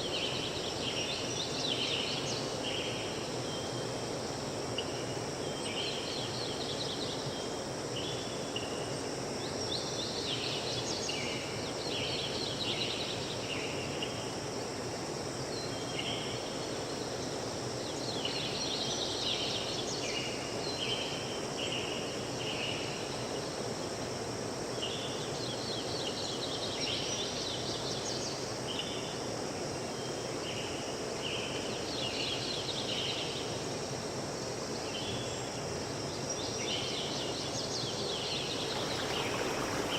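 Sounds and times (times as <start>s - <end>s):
high insect drone: 0.0s - 39.9s
forest stream flowing: 29.0s - 39.9s.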